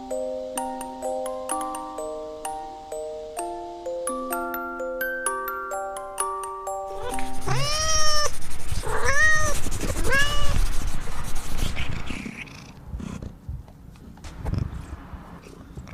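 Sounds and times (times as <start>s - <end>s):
cat meowing: 7.0s - 10.6s.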